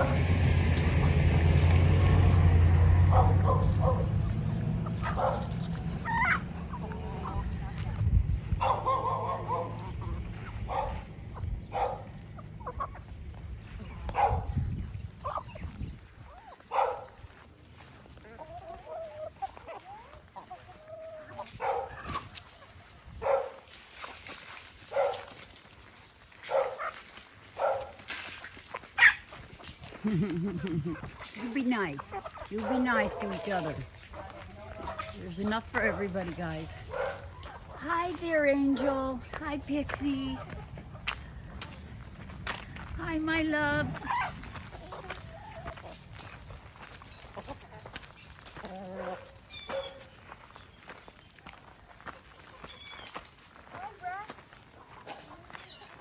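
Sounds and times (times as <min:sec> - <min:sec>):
chicken wavering calls: 0:00.0 - 0:23.0, 0:28.7 - 0:43.0, 0:43.7 - 0:51.0
chickens clucking: 0:00.0 - 0:56.0.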